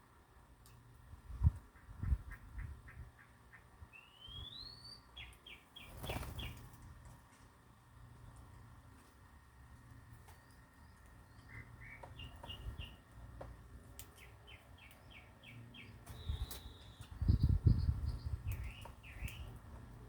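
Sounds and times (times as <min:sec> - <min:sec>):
small birds chirping: 0:01.4 - 0:06.9, 0:09.8 - 0:20.0
bird whistle: 0:04.0 - 0:05.3, 0:16.1 - 0:17.5.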